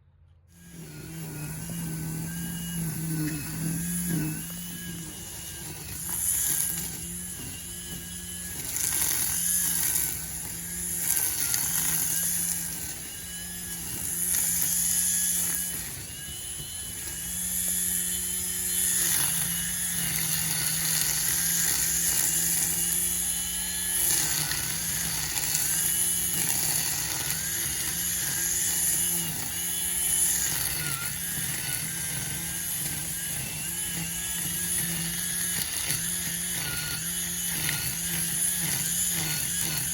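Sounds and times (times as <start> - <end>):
string trimmer whining: 0.0 - 39.9.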